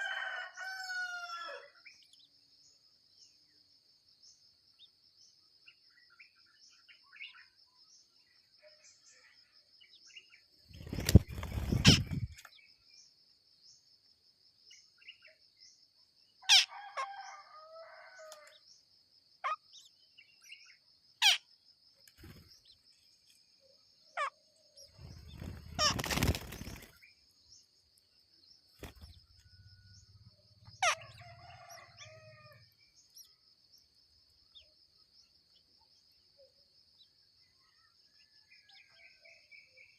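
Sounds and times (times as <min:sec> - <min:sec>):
birds chirping: 0:04.3 - 0:13.1, 0:19.4 - 0:36.2
wings flapping: 0:10.7 - 0:12.5, 0:25.0 - 0:27.0, 0:28.8 - 0:29.4
high insect buzz: 0:25.0 - 0:27.2.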